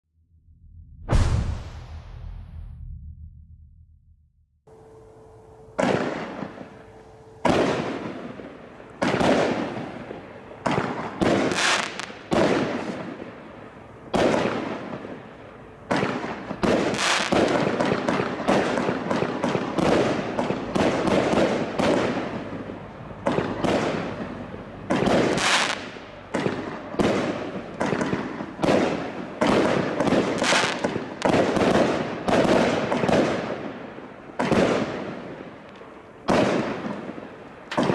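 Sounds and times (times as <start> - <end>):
firework bangs: 1.1 - 3.2, 10.6 - 13.2, 15.9 - 33.8, 34.4 - 35.6, 36.2 - 37.9.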